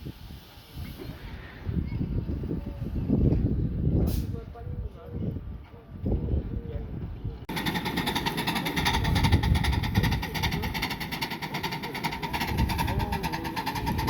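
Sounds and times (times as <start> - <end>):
steam hiss: 0.0 - 1.6
steam locomotive chuffing: 7.5 - 14.0.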